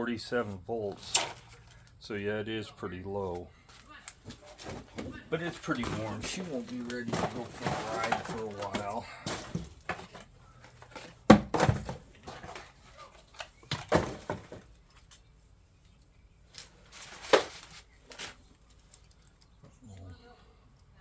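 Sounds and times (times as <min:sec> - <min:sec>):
knocks and clunks of objects handled: 0:00.9 - 0:02.0, 0:03.4 - 0:19.8.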